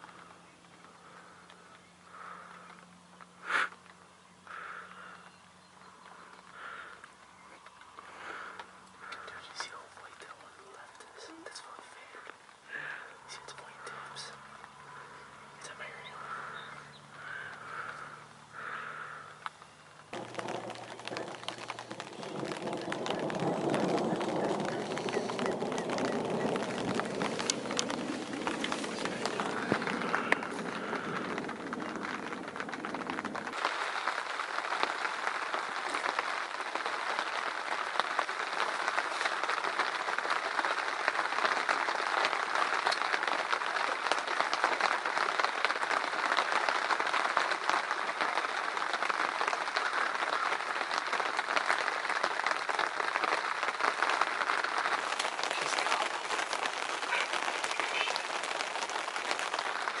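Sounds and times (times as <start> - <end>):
heavy rain falling: 0.0 - 60.0
low rumble: 20.2 - 33.6.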